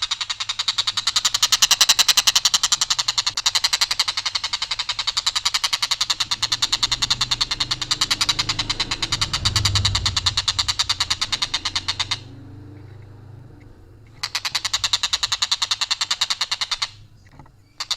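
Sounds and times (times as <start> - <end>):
kingfisher rattling call: 0.0 - 17.9
low hum: 5.4 - 15.5.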